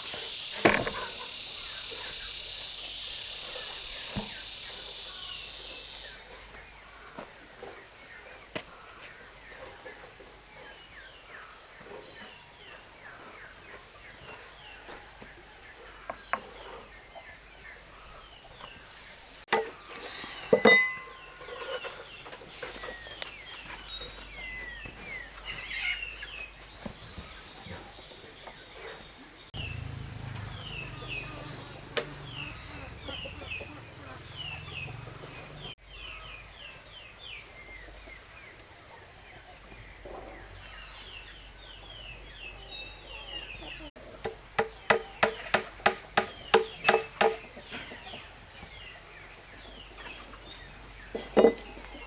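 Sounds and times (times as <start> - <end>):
birds chirping: 0.0 - 52.0
sharp knocks: 44.2 - 47.5.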